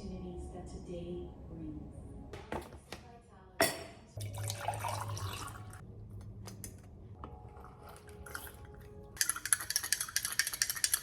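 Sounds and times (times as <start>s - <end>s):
utensils and dishes clinking: 6.5s - 11.0s.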